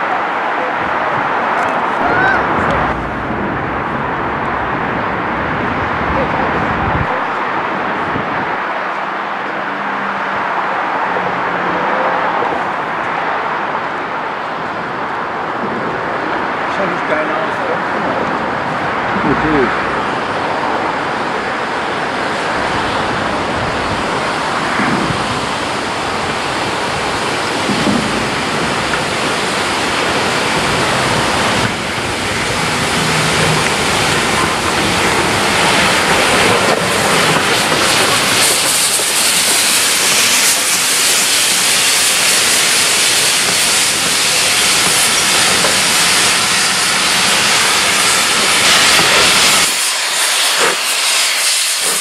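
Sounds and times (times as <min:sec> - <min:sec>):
steam locomotive hissing steam: 0:25.8 - 0:52.0.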